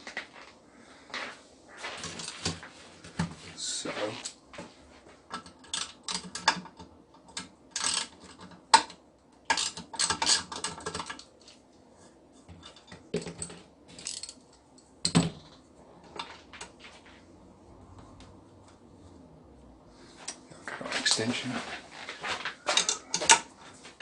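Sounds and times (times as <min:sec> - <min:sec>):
clicks of hand tools and metal parts: 0:05.3 - 0:11.3, 0:12.5 - 0:15.5, 0:22.2 - 0:24.0.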